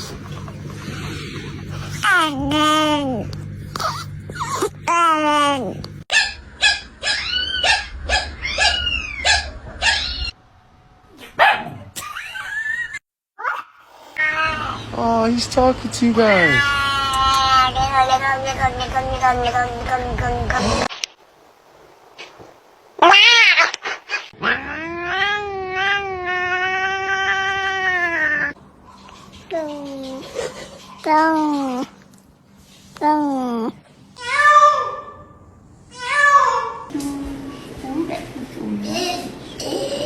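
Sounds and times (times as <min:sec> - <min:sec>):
cat yowling: 0:06.2 - 0:10.4, 0:13.4 - 0:14.9, 0:23.0 - 0:28.6.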